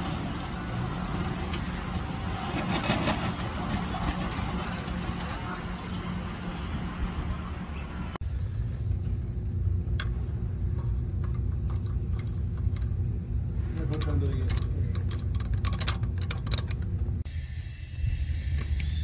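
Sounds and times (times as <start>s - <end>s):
engine low rumble: 0.0s - 19.0s.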